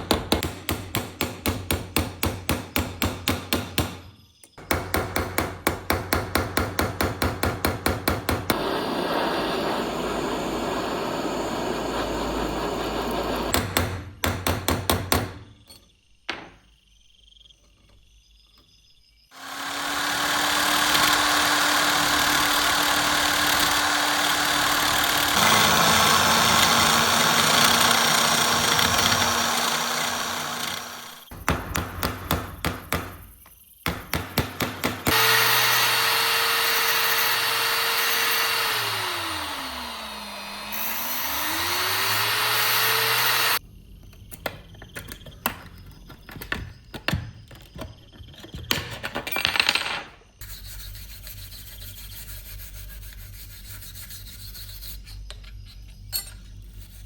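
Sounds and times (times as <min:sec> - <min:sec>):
power tool running: 0:08.5 - 0:13.6, 0:19.3 - 0:31.3, 0:35.1 - 0:43.6.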